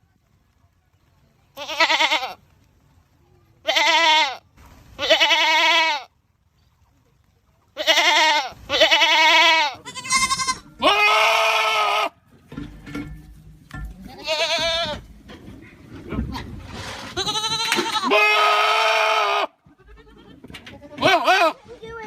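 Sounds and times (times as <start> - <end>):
goats screaming: 7.8 - 12.2, 17.1 - 20.3.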